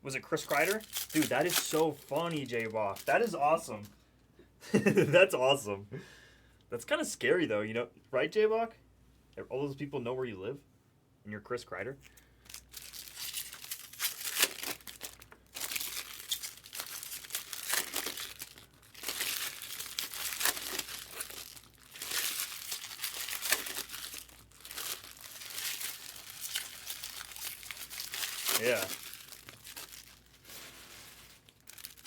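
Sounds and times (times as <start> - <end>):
plastic wrappers crinkling and tearing: 0.2 - 3.9, 12.0 - 32.0.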